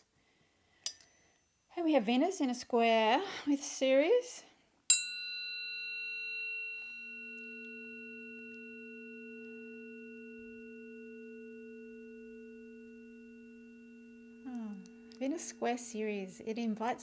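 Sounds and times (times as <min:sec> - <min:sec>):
tuning forks ringing: 0:00.8 - 0:01.7, 0:04.9 - 0:17.0.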